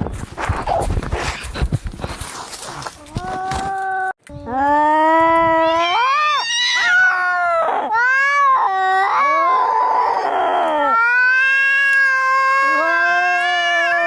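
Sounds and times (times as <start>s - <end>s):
cats yowling in a fight: 5.2s - 14.0s.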